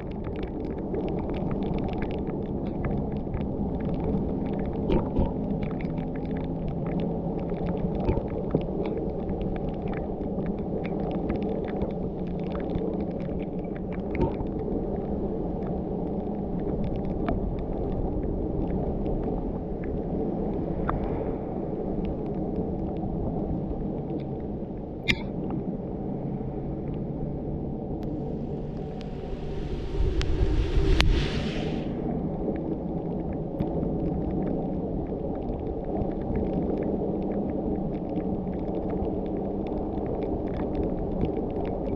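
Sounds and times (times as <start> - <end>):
faint ticks: 18.6 - 21.3.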